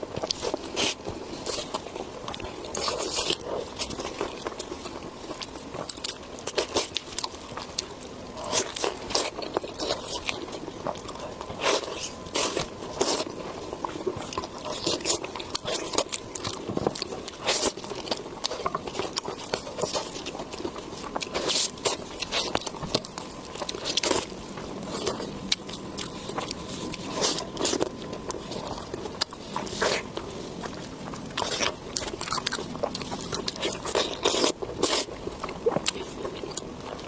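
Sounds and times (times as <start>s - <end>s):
biting: 0.0s - 37.0s
wet chewing: 0.0s - 37.0s.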